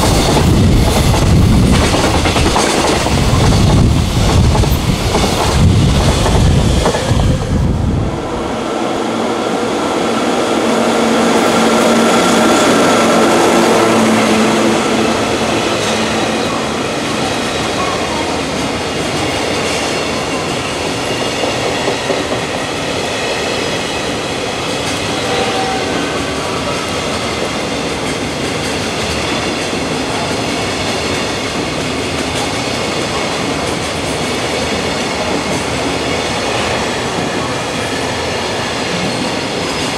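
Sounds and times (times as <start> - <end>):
freight train wheels clattering: 0.0 - 7.6
deep train rumble: 0.0 - 39.9.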